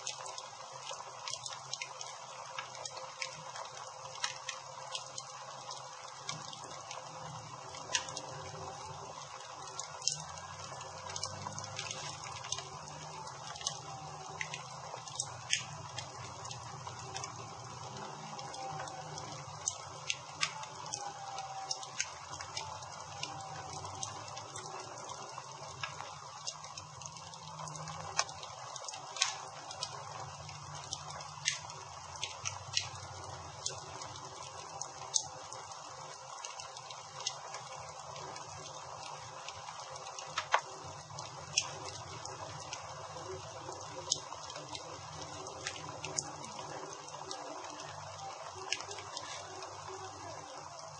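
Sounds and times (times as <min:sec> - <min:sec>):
campfire crackling and hissing: 0:00.0 - 0:50.9.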